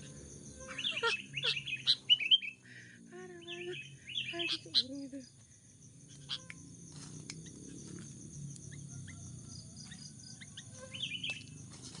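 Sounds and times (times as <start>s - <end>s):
bird chirps: 0.0s - 2.7s, 3.4s - 5.3s, 9.9s - 11.6s
high-pitched insect drone: 0.0s - 12.0s.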